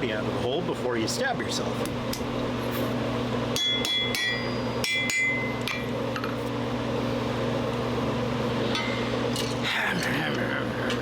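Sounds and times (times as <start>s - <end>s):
hammer ringing on anvil: 3.6s - 5.9s, 8.8s - 9.1s.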